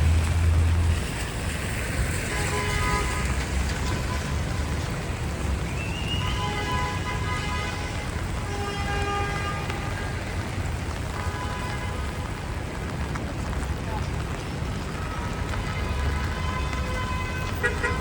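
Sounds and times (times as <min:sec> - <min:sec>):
rain hiss: 0:00.0 - 0:18.0
traffic rumble: 0:00.0 - 0:18.0.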